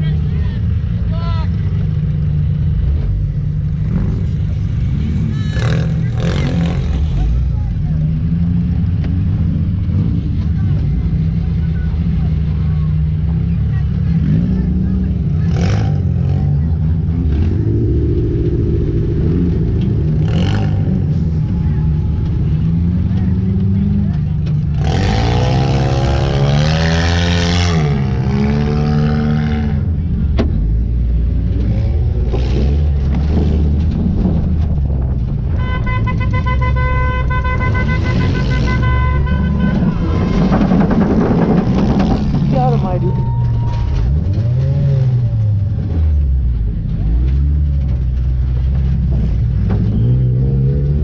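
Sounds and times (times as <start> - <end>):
race car engine running hard: 0.0 - 35.6, 37.0 - 51.0
car horn long note: 35.6 - 40.2
clattering noise: 39.4 - 45.0.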